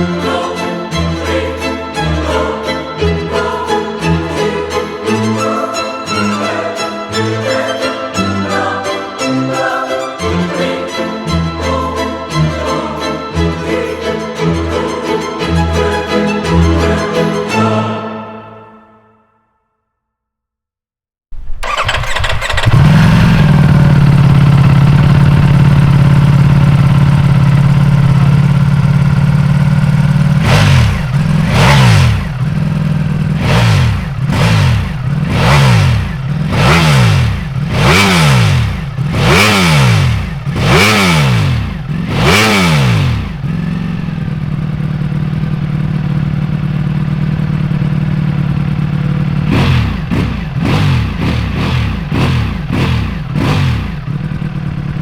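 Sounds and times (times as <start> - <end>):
motorcycle engine idling and revving: 21.3 - 55.0.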